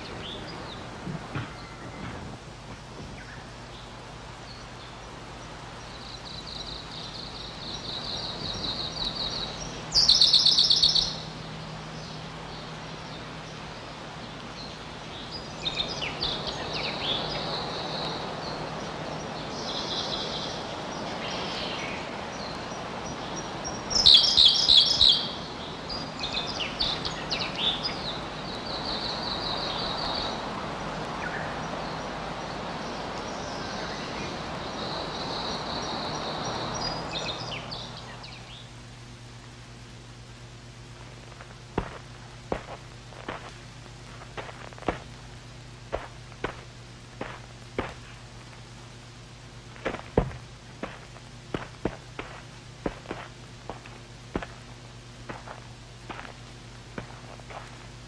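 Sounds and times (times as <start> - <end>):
birds chirping and trilling: 0.0 - 39.4
loud harsh bird calls: 4.6 - 30.5.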